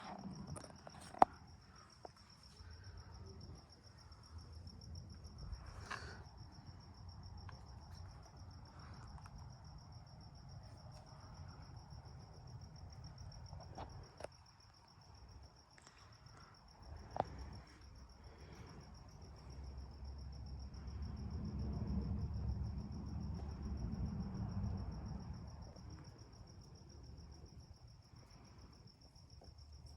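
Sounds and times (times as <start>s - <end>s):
low steady rumble: 16.8s - 28.7s.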